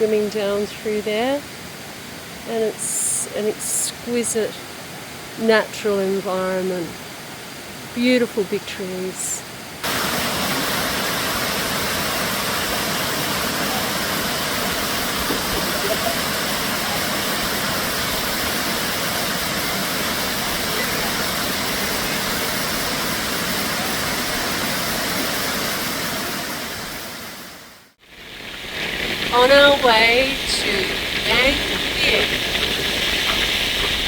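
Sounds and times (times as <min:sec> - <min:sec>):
waterfall rushing: 0:09.5 - 0:34.0.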